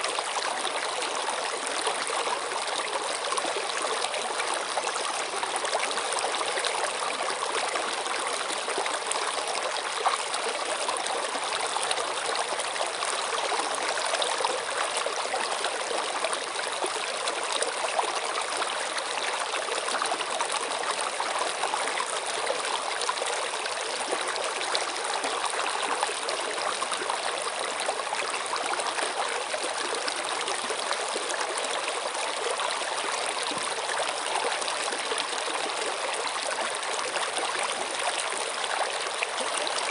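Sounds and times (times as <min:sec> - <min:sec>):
water flowing: 0:23.0 - 0:39.9.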